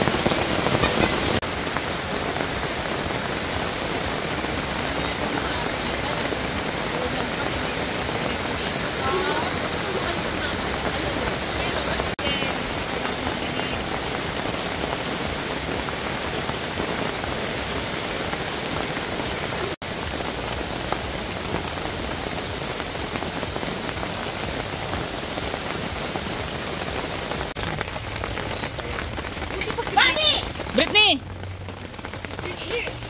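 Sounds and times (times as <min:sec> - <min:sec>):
rain falling on puddles: 0:00.0 - 0:33.0.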